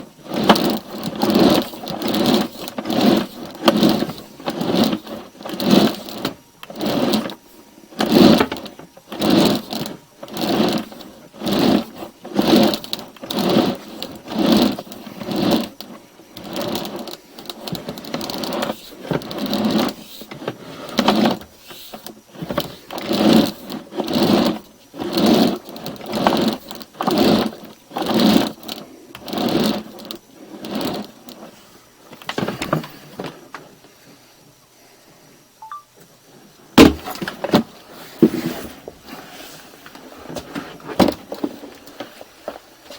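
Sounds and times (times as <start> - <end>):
push cable rushing through pipe: 0.0 - 33.4.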